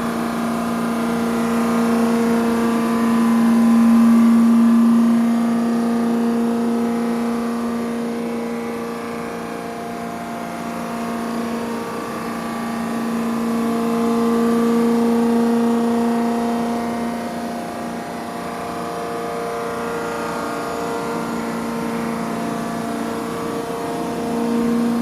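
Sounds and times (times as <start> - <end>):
machine tool humming: 0.0 - 25.0.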